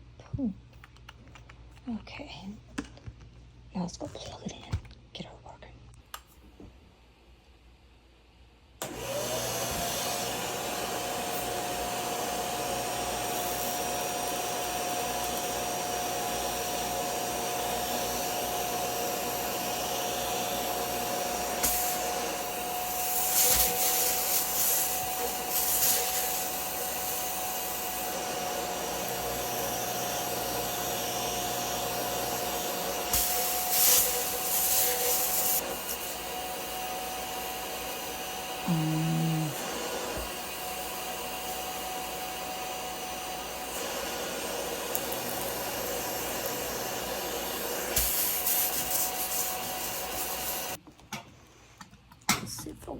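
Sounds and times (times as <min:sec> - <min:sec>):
carpet cleaner motor whine: 0:08.8 - 0:50.8
high hissing: 0:38.6 - 0:40.3.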